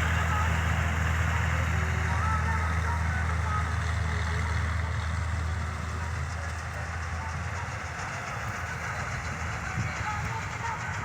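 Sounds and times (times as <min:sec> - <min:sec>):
diesel engine humming: 0:00.0 - 0:11.0.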